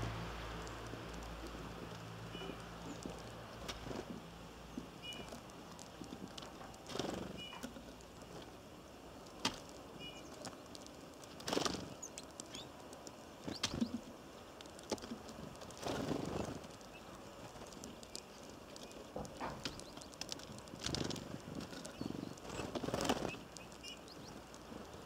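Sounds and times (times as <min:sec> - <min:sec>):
bird wings fluttering: 0:02.9 - 0:04.2, 0:05.2 - 0:08.5, 0:09.4 - 0:12.7, 0:14.8 - 0:24.6
high bird chirp: 0:05.0 - 0:05.3, 0:07.4 - 0:07.7, 0:10.0 - 0:10.4, 0:21.8 - 0:24.4.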